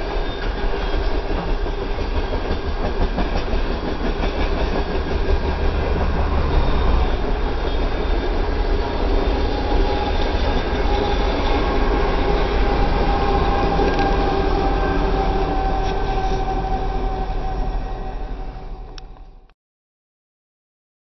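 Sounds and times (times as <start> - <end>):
freight train rumbling past: 0.0 - 19.5
steady whine: 4.8 - 19.5.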